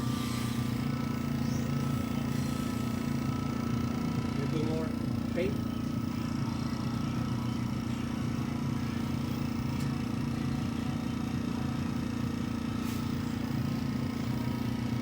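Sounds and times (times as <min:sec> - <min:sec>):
air hissing: 0:00.0 - 0:03.7, 0:12.7 - 0:14.1
compressor humming: 0:00.0 - 0:15.0.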